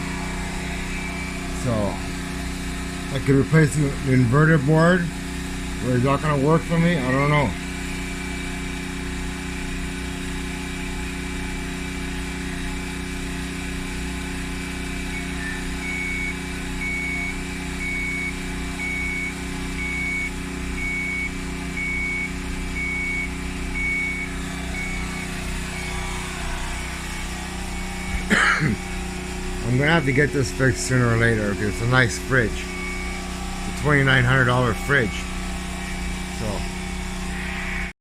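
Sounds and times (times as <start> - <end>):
high electronic beep: 0.0 - 3.3, 15.0 - 37.9
low mechanical hum: 0.0 - 37.9.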